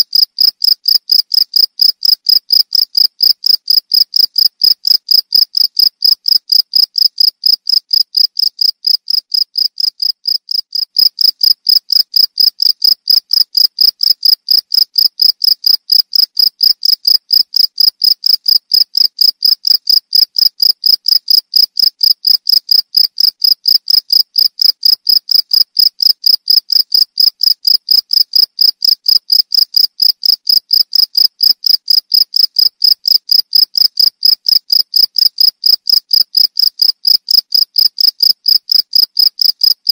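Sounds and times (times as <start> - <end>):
field crickets chirping: 0.2 - 39.8.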